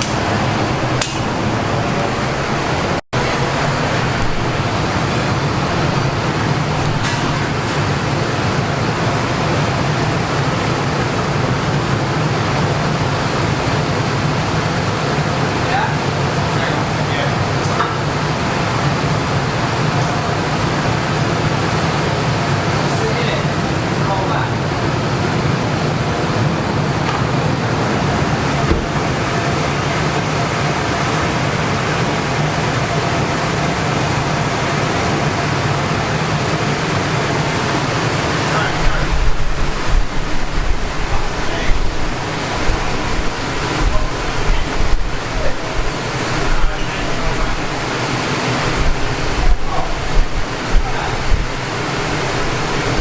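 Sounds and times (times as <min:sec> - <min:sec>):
fan blowing air: 0:00.0 - 0:53.0.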